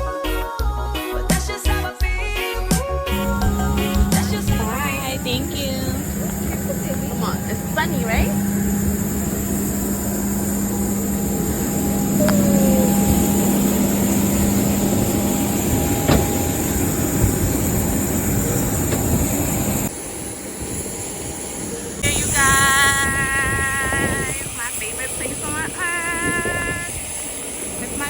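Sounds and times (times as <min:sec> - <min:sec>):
vehicle rumble: 0:03.1 - 0:19.9
warbling pitched sound: 0:03.2 - 0:17.0.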